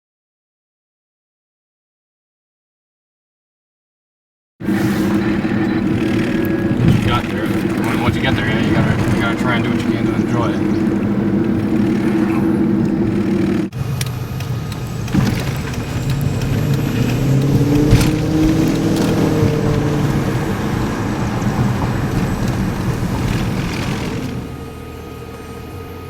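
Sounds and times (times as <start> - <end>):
car engine and road noise: 4.6 - 26.0
click: 14.0 - 14.9.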